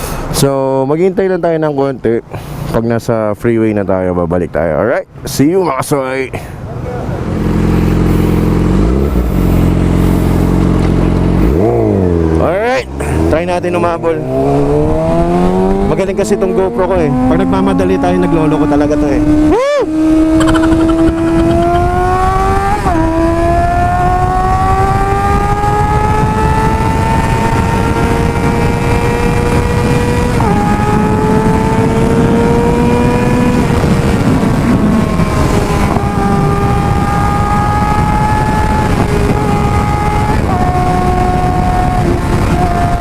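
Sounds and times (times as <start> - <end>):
motorcycle engine revving through gears: 7.2 - 43.0
wind rush on microphone: 7.3 - 43.0.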